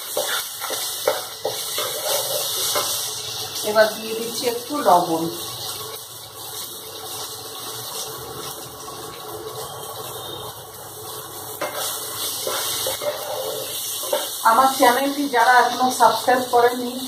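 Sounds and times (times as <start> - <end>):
wooden spatula scraping pan: 0.0 - 3.0, 11.6 - 14.4
paste sizzling in oil: 0.0 - 17.0.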